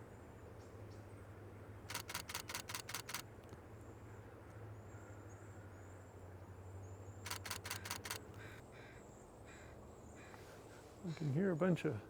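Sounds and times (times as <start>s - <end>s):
camera shutter burst: 1.9s - 3.3s, 7.3s - 8.3s.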